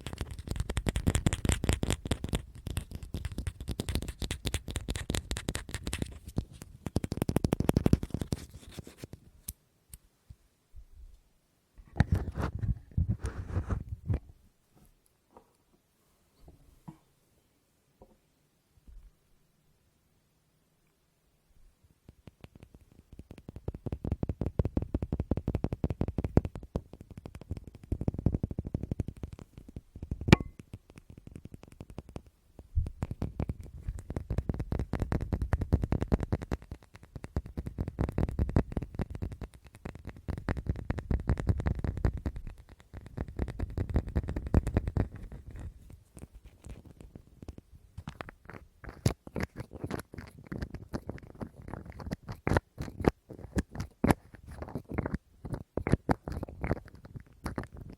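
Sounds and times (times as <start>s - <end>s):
rapid fingertip tapping: 0.0s - 8.8s, 22.1s - 57.9s.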